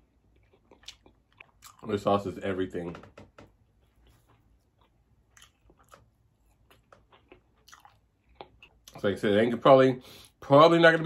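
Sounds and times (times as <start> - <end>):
chewing mouth sounds: 0.1 - 1.9, 4.0 - 9.0.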